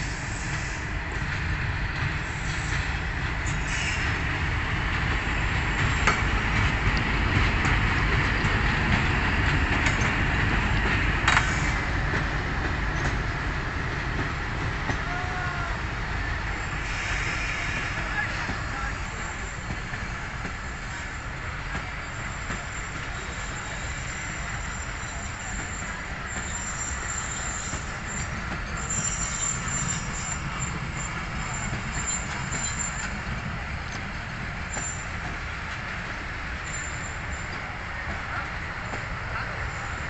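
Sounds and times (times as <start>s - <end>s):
locomotive engine rumble: 0.0s - 40.0s
wheel squeals: 22.0s - 33.2s, 36.6s - 37.7s.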